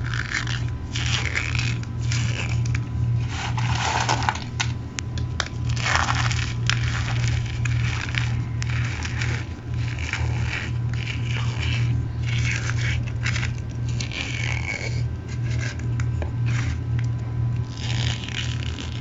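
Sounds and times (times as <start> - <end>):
cornstarch crushed by hand: 0.0 - 19.0
steady low hum: 0.0 - 19.0.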